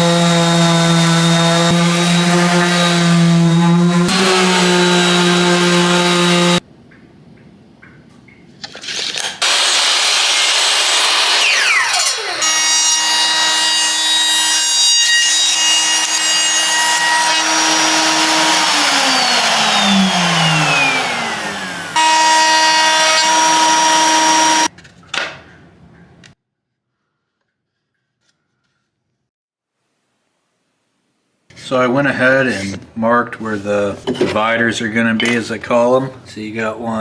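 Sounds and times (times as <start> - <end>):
power tool motor running: 16.9 - 24.7.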